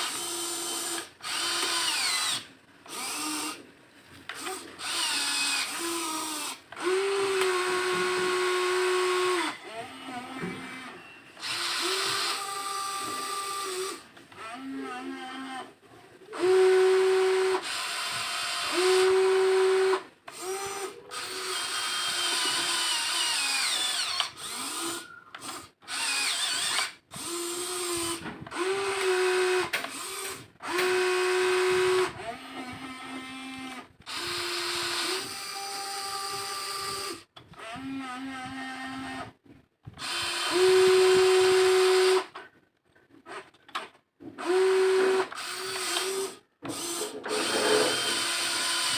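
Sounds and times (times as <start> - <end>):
small electric motors whining: 16.3 - 39.3, 44.4 - 48.9.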